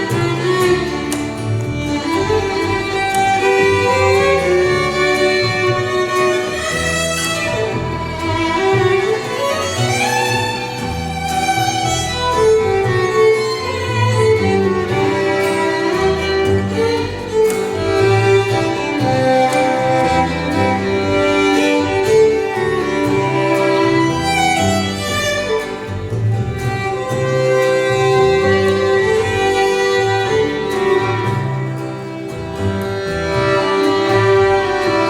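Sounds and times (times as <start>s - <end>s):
bass line: 0.0s - 35.0s
violin melody: 0.0s - 35.0s.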